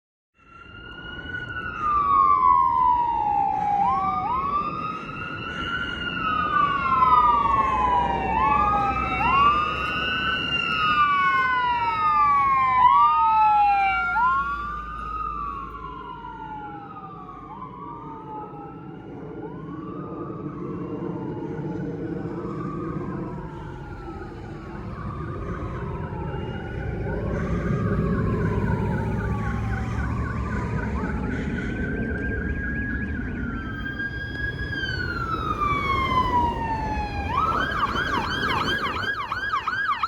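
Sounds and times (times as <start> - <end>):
emergency sirens wailing: 0.4 - 40.0
low engine rumble: 17.6 - 40.0.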